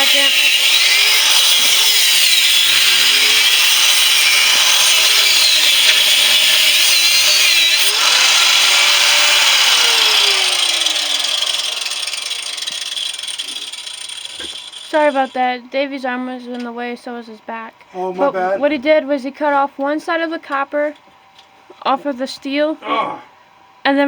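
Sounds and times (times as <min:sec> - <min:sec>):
angle grinder cutting steel: 0:00.0 - 0:15.4.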